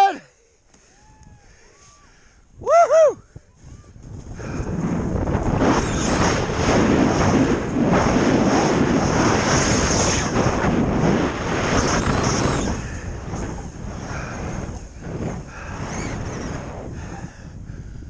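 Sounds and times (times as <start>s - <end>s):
snowboard rushing over snow: 4.0s - 17.2s.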